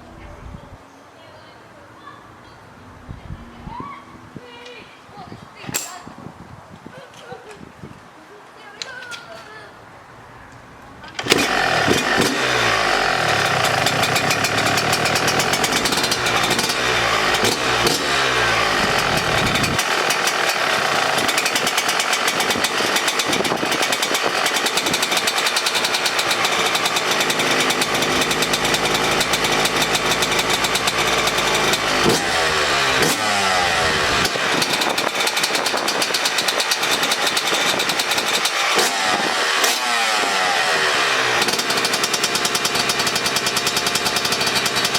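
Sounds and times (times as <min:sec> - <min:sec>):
two-stroke engine revving: 0:11.1 - 0:44.9.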